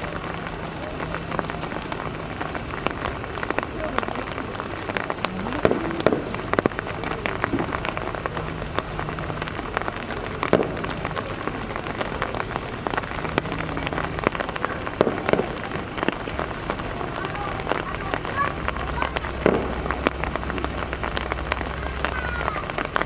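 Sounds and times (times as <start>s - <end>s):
drops ticking sharply: 0.0s - 23.0s
rain falling: 0.0s - 23.0s.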